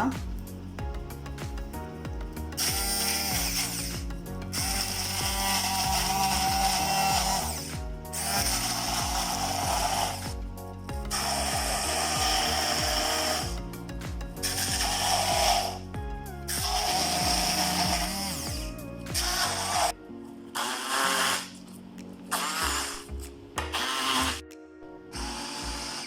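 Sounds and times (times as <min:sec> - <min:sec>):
electric blender grinding: 0:02.6 - 0:10.4, 0:11.1 - 0:13.6, 0:14.5 - 0:15.8.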